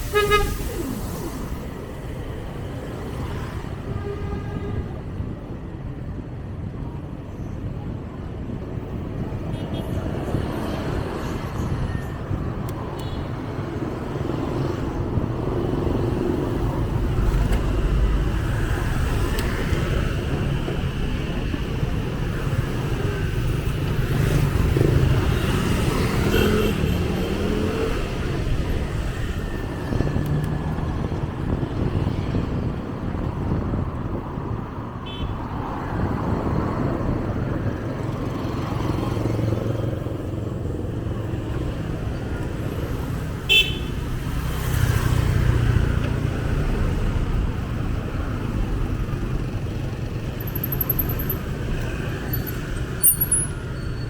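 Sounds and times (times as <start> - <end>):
street traffic: 0.0 - 54.0
motorbikes passing: 36.1 - 54.0.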